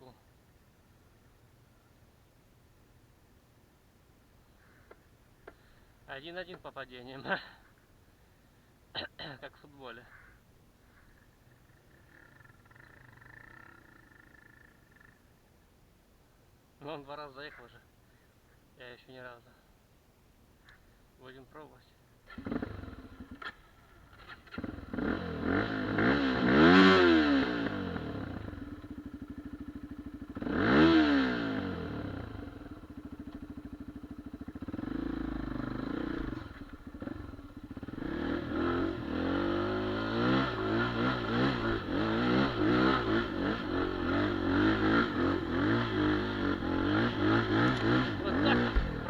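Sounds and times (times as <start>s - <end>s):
motorcycle engine revving: 22.3s - 49.0s.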